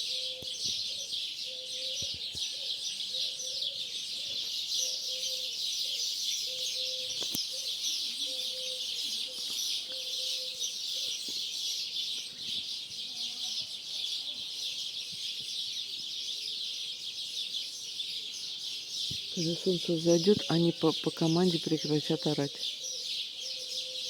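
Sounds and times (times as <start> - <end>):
lower bird call: 0.0 - 4.0, 4.8 - 11.5
starlings chattering and screeching: 0.0 - 24.0.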